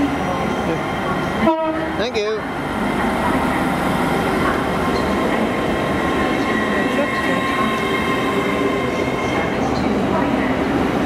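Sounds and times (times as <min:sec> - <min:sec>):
train rumble and rail noise: 0:00.0 - 0:11.0.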